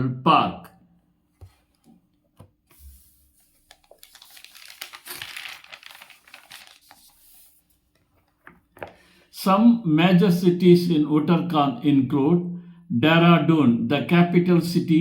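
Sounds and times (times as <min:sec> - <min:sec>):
faint crackling rustle: 0:02.8 - 0:08.6.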